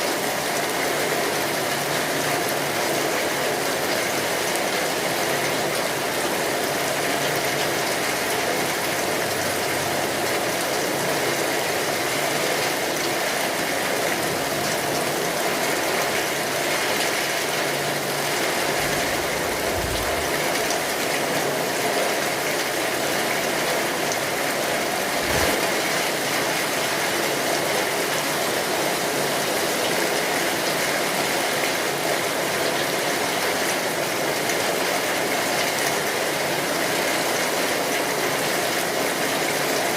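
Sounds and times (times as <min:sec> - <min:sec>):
steady rainfall: 0:00.0 - 0:39.9
short low rumbles: 0:18.4 - 0:21.1.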